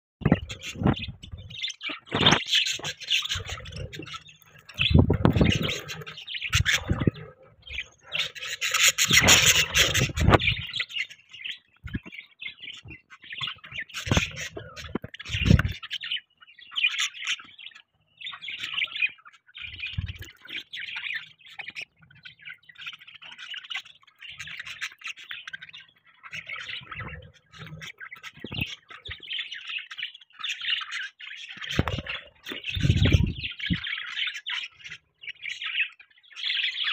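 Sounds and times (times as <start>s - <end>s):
budgie squawks: 0.2s - 11.3s
budgies chirping and chattering: 0.2s - 36.9s.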